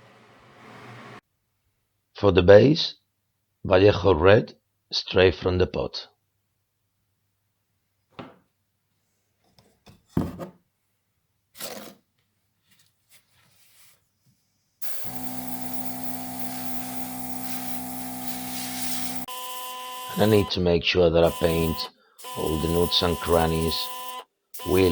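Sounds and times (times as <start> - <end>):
machine hum with hiss: 14.8 - 20.5, 21.2 - 24.9.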